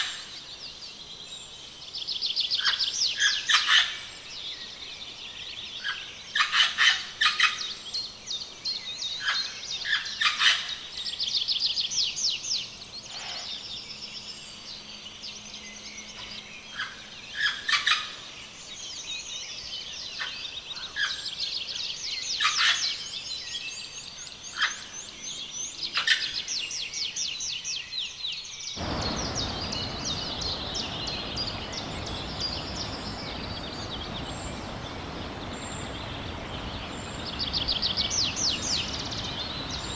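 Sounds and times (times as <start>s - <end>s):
birds calling with trills: 28.8s - 39.9s
steady rushing noise: 28.8s - 39.9s.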